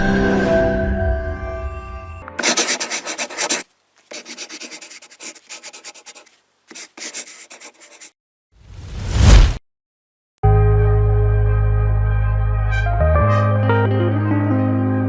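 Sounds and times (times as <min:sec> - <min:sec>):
music: 0:00.0 - 0:02.4, 0:10.4 - 0:15.0
rapid rubbing strokes: 0:02.4 - 0:08.2.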